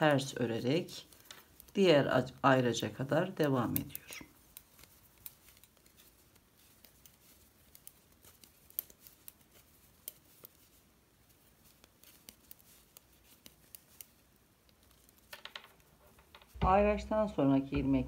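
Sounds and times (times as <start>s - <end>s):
knitting needles clicking: 0.0s - 18.0s.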